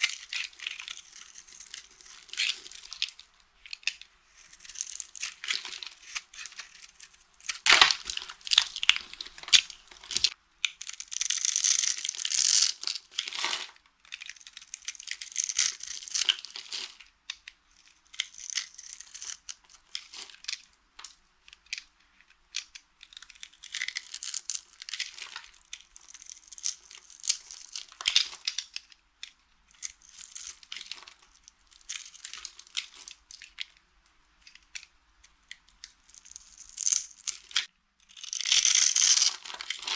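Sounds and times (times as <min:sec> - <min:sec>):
soap crunching and crackling: 0:00.0 - 0:11.0.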